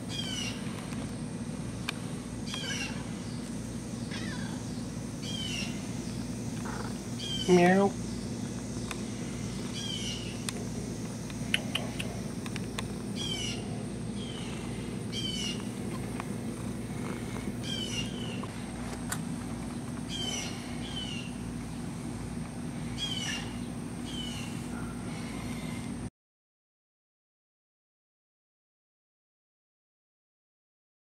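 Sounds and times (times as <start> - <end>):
songbird trilling and chirping: 2.5 - 10.5, 13.2 - 15.7, 17.6 - 18.5, 20.1 - 21.4, 23.0 - 24.9.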